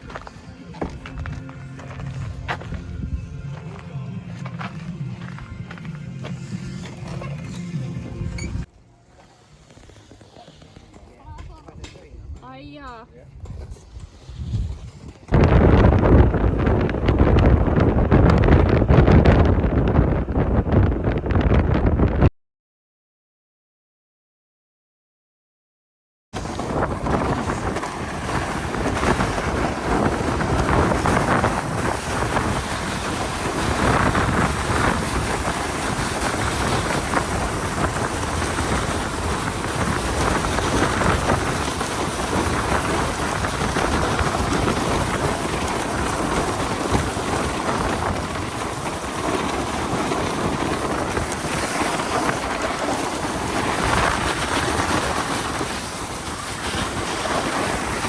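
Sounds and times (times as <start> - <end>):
sled scraping over snow: 0.0 - 11.8, 12.5 - 22.2, 26.4 - 58.0
wind on microphone: 11.2 - 22.3, 26.4 - 58.0.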